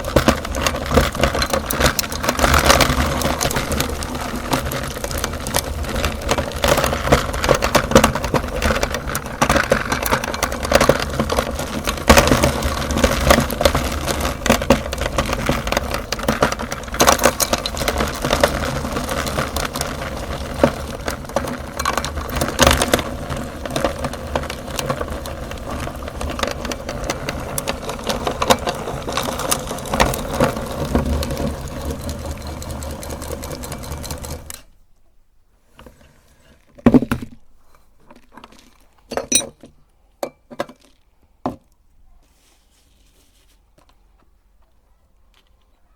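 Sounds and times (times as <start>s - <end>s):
meat grinder motor humming: 16.7s - 34.6s.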